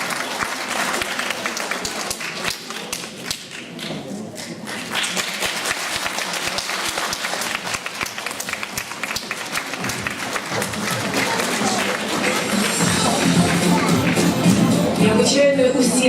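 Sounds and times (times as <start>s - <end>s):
audience applauding: 0.0s - 15.0s
faint music: 10.5s - 16.0s.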